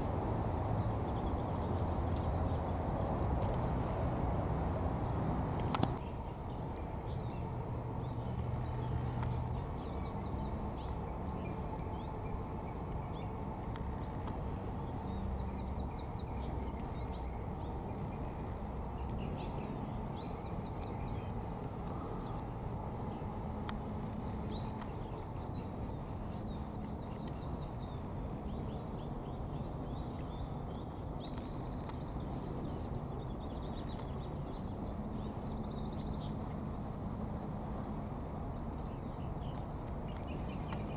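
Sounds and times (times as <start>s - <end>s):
low background rumble: 0.0s - 31.0s
small bird chirping: 5.6s - 40.9s.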